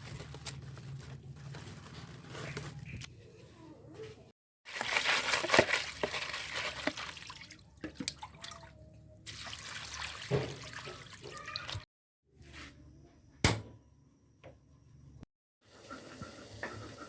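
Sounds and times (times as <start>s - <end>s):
water sloshing and dripping: 4.7s - 11.8s.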